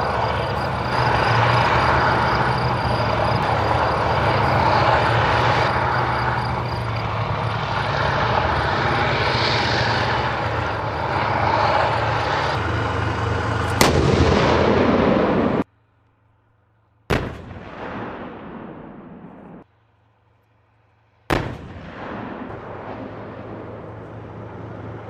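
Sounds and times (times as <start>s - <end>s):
military jet engine drone: 0.0s - 25.0s
sharp crack: 13.5s - 15.7s, 17.1s - 19.6s, 21.3s - 24.2s.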